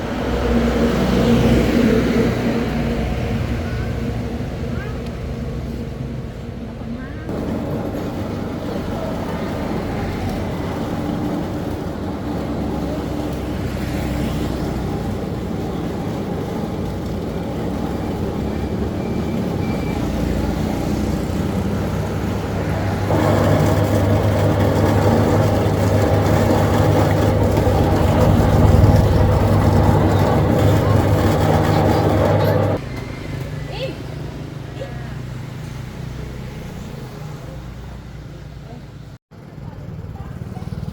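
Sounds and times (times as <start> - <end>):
motor vehicle running: 7.3 - 33.6.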